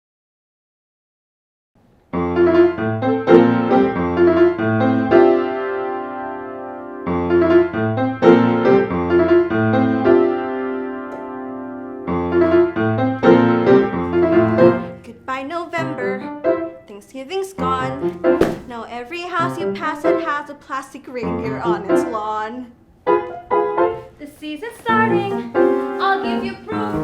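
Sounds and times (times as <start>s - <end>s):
piano chords: 2.2s - 14.9s.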